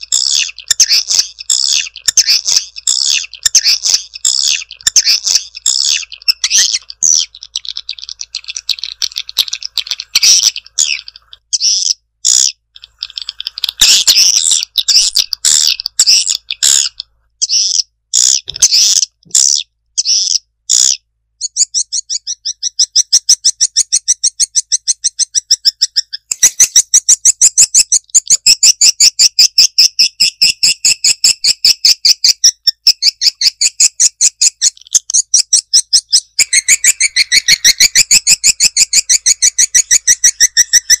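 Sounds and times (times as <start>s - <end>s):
swiftlets twittering: 35.6s - 41.0s.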